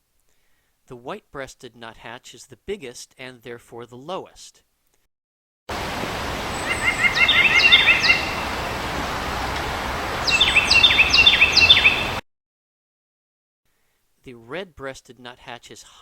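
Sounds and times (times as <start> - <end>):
outdoor background hiss: 0.0 - 5.1, 5.7 - 12.2, 13.7 - 16.0
nuthatch nasal call: 6.5 - 8.5, 10.2 - 12.2.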